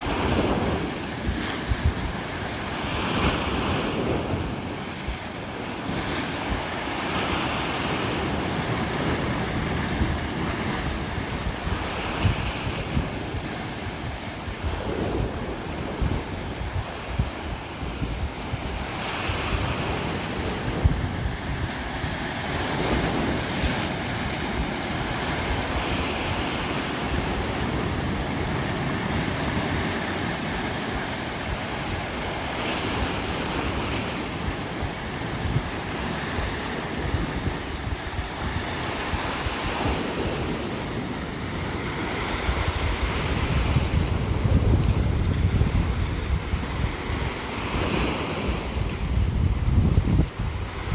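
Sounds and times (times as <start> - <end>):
wind buffeting microphone: 0.0 - 50.9.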